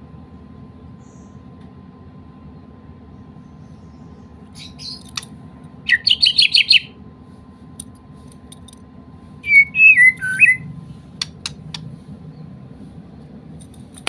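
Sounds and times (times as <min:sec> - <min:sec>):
bird singing: 0:02.6 - 0:05.1, 0:05.9 - 0:07.0, 0:09.4 - 0:10.7
sharp clicks: 0:11.2 - 0:11.9.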